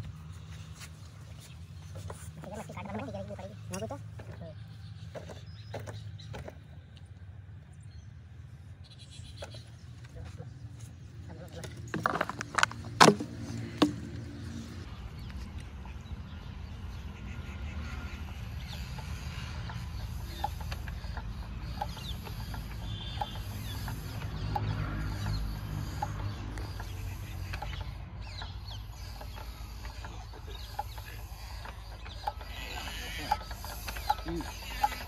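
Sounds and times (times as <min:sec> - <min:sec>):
stationary diesel engine running: 0:14.9 - 0:35.0
chickens clucking: 0:18.1 - 0:35.0.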